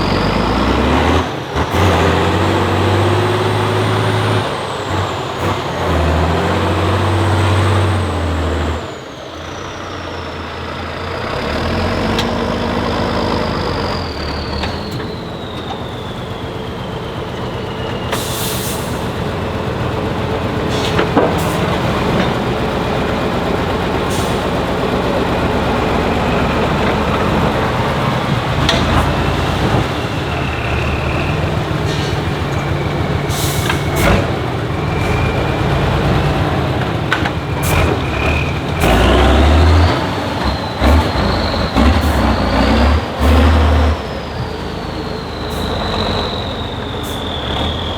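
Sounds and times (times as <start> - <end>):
truck diesel engine revving: 0.0 - 47.9
air brakes hissing: 13.4 - 19.4, 20.5 - 22.4, 23.9 - 24.8, 26.0 - 35.6, 37.1 - 47.9.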